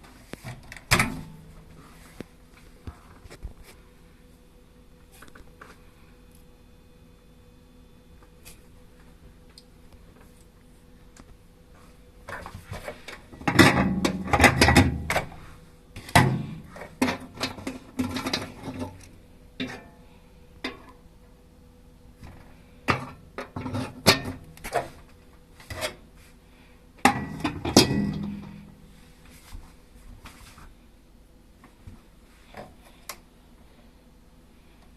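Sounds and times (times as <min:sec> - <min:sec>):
faint steady hum: 0:00.0 - 0:34.9
microwave parts knocking and clattering: 0:00.4 - 0:01.8, 0:12.2 - 0:20.0, 0:20.6 - 0:21.0, 0:22.2 - 0:26.0, 0:27.0 - 0:28.8.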